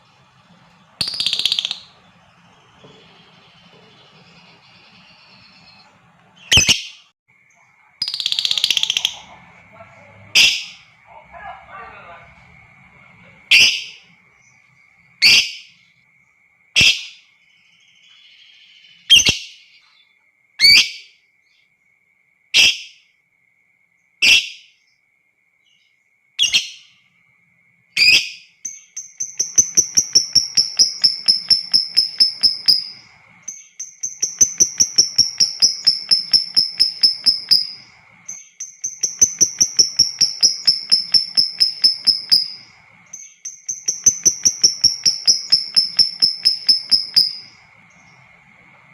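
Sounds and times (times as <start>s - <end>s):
lovebird chattering trills: 0.1s - 7.0s, 8.0s - 14.3s, 28.0s - 48.9s.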